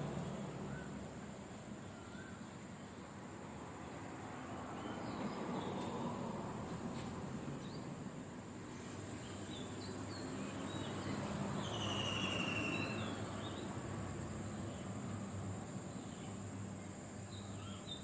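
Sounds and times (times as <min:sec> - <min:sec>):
insects buzzing: 0:00.0 - 0:18.0
bird chirps: 0:09.2 - 0:13.7
bird trill: 0:11.6 - 0:13.6.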